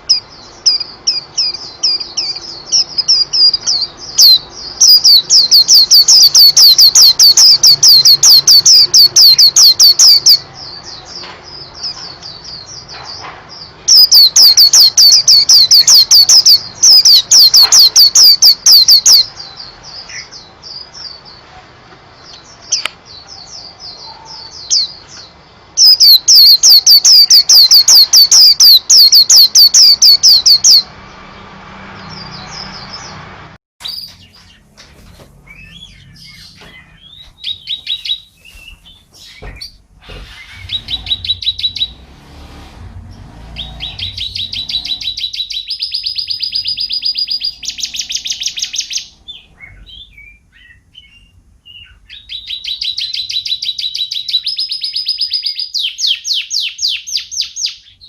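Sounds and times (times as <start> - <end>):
bird chips: 0.0 - 21.4, 33.8 - 42.0
canary singing trills: 0.0 - 58.0.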